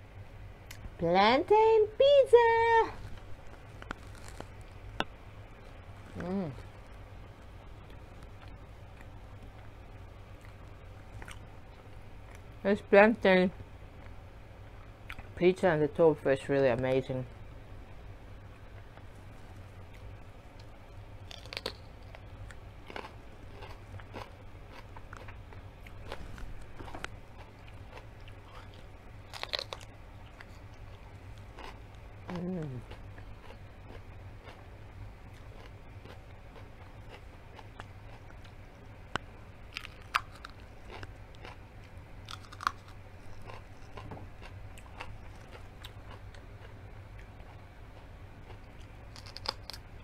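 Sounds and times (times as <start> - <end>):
crunching raw pepper: 3.0 - 6.8, 19.2 - 34.7, 35.3 - 50.0.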